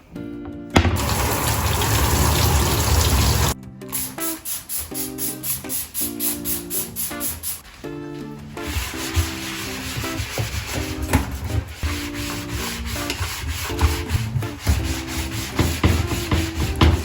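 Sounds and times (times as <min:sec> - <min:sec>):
soft background music: 0:00.0 - 0:17.0
hand rubbing a surface: 0:08.6 - 0:17.0.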